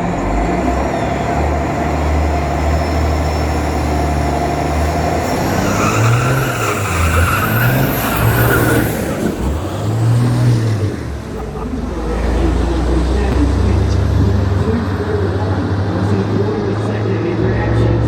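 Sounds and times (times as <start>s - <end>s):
diesel truck engines revving: 0.0s - 18.0s
high rising whistle: 0.6s - 9.4s.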